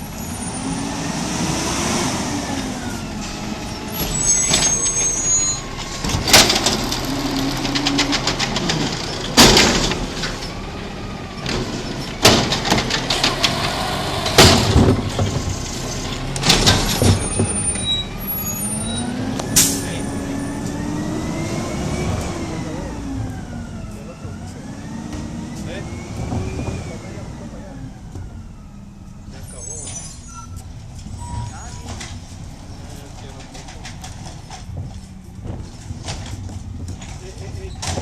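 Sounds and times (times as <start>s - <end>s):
garbage truck engine revving: 0.0s - 28.4s.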